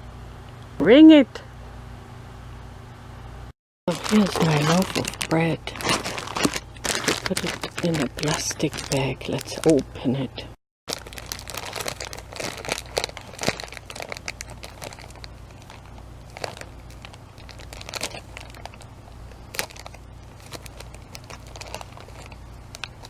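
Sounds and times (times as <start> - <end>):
plastic bag crinkling: 3.9 - 9.8, 10.9 - 23.0.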